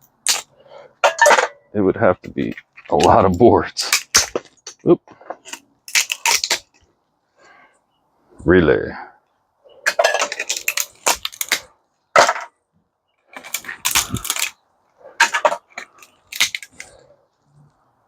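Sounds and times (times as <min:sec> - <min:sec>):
small electronic parts clattering: 0:09.8 - 0:12.6, 0:13.3 - 0:14.6, 0:15.2 - 0:17.0.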